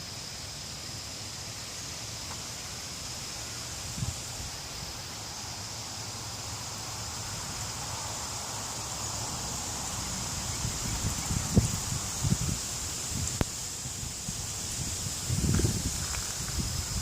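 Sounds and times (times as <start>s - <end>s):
leaves rustling: 0.0s - 17.0s
steady high hiss: 0.0s - 17.0s
wind blowing through trees: 0.0s - 17.0s
wind buffeting microphone: 10.4s - 17.0s.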